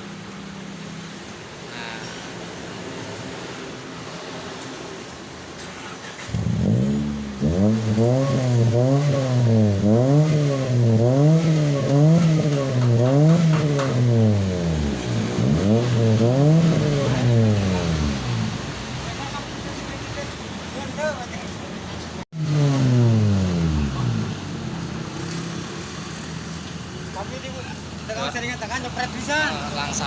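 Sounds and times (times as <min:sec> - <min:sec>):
car engine revving: 0:05.8 - 0:19.3, 0:22.3 - 0:26.5.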